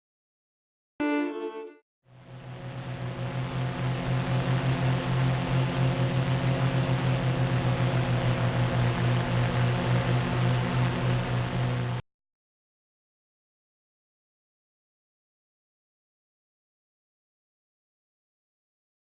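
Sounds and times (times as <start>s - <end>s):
drone propellers humming: 2.1s - 12.0s.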